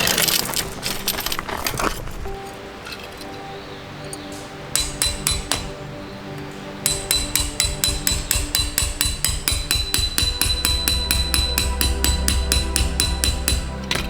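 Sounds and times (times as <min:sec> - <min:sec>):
background music: 0:00.0 - 0:14.0
hammer blows on metal: 0:04.7 - 0:14.0.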